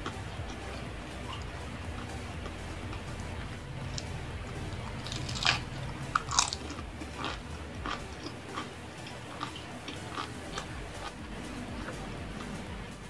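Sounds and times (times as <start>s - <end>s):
person crunching fried food: 5.0s - 11.1s.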